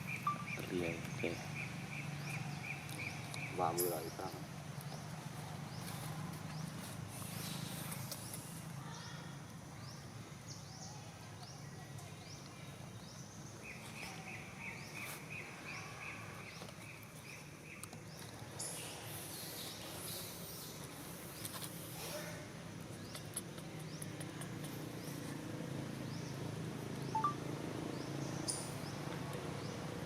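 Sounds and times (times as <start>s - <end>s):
birds chirping: 0.0s - 9.2s, 9.8s - 22.0s, 22.8s - 30.0s
evenly spaced bird notes: 27.1s - 27.4s.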